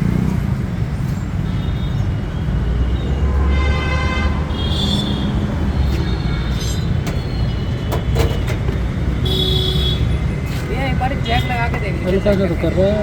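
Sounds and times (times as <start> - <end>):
high-pitched squealing tone: 4.9 - 7.8.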